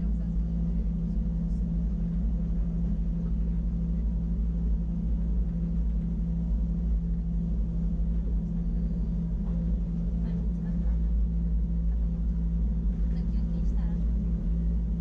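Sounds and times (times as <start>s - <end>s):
electric train humming: 0.0s - 15.0s.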